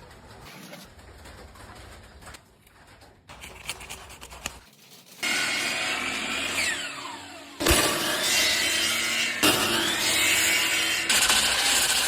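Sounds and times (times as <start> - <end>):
light scratching and handling: 0.4 - 5.2
power tool running: 5.2 - 12.0.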